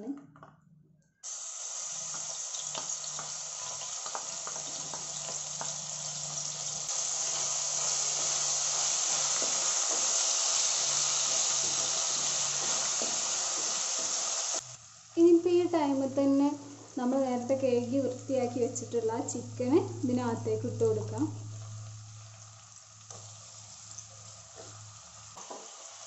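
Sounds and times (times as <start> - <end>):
paste sizzling in hot oil: 1.2 - 15.2, 21.7 - 26.0.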